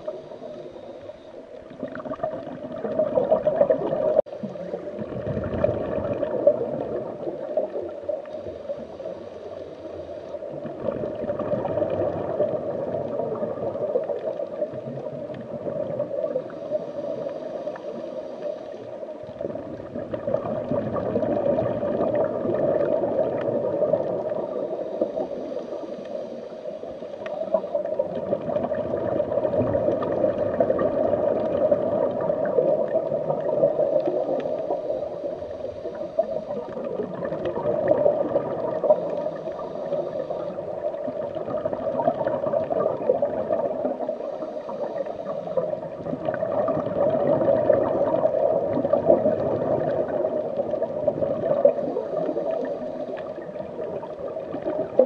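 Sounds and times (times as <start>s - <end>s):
muffled underwater rush: 0.0s - 55.0s
water gurgling: 0.0s - 55.0s.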